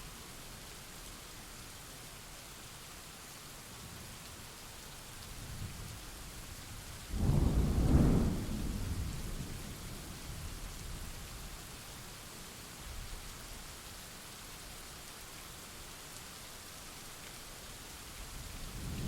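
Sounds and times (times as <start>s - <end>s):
steady rain falling: 0.0s - 19.0s
thunderclap: 7.2s - 9.5s.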